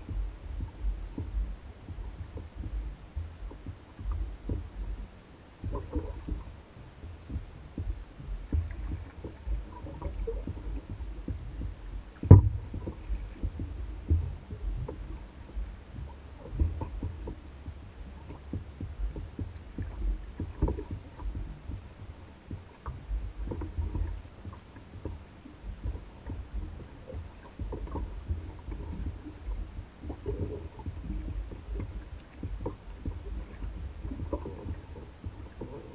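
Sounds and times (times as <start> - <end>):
waves lapping against canoe hull: 0.0 - 35.9
sharp knock on hull: 7.3 - 15.0.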